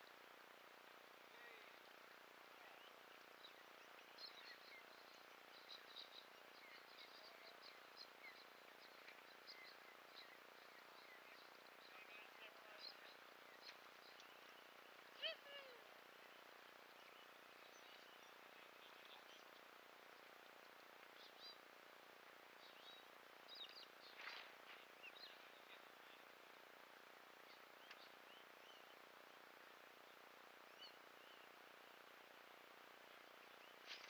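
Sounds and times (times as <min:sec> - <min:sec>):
steady low hiss: 0:00.0 - 0:34.0
faint bird chirps: 0:01.3 - 0:21.7, 0:27.4 - 0:34.0.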